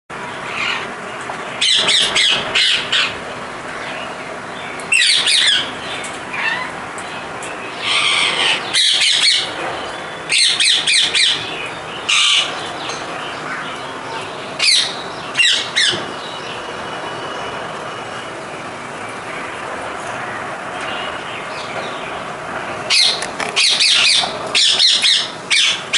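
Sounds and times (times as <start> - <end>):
parrots squawking: 0.5 - 0.9, 1.6 - 3.2, 6.3 - 6.8, 7.8 - 9.5, 12.1 - 12.6, 14.6 - 16.0, 22.9 - 25.9.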